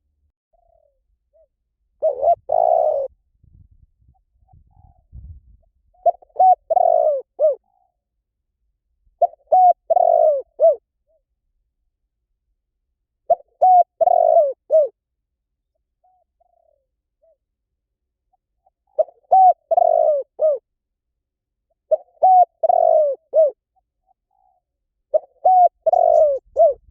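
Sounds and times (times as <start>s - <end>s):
dove cooing: 0.6s - 3.1s, 5.9s - 8.0s, 9.2s - 10.8s, 13.3s - 15.0s, 16.0s - 17.4s, 18.4s - 20.6s, 21.7s - 26.9s.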